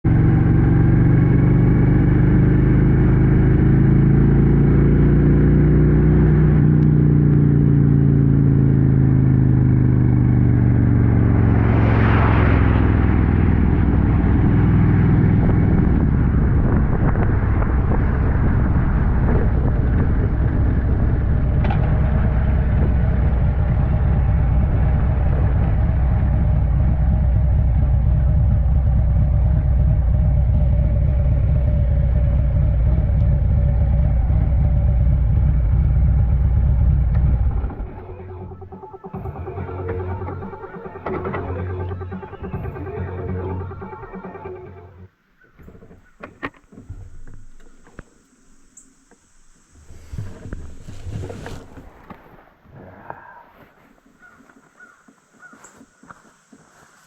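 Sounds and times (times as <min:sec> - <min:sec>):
motorcycle engine running: 0:00.0 - 0:51.9
road rumble: 0:00.0 - 0:57.0
rushing whoosh: 0:10.6 - 0:26.2.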